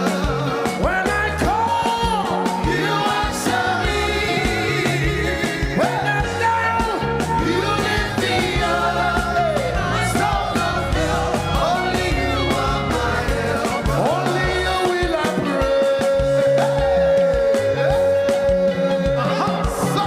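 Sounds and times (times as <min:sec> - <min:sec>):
band playing: 0:00.0 - 0:20.0
person singing: 0:00.0 - 0:20.0.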